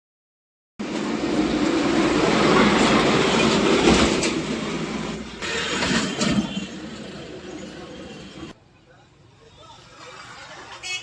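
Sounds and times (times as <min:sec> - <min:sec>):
rumbling and rattling noise: 0:00.8 - 0:08.5.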